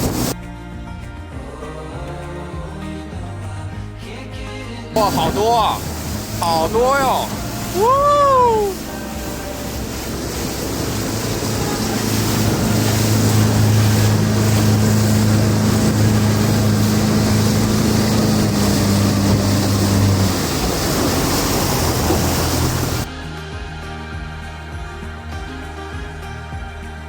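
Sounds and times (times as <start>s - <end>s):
motorboat engine humming: 0.0s - 0.4s, 5.0s - 23.1s
water noise: 0.0s - 0.4s, 5.0s - 23.1s
wind rushing: 0.0s - 0.4s, 5.0s - 23.1s
music: 0.0s - 27.0s.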